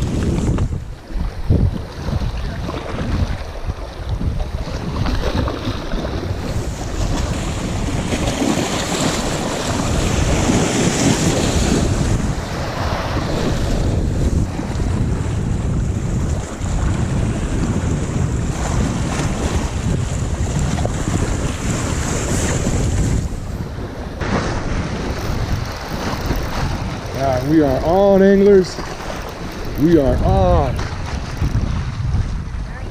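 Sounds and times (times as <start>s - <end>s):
gusty wind buffeting microphone: 0.0s - 32.9s
lake waves washing: 0.0s - 32.9s.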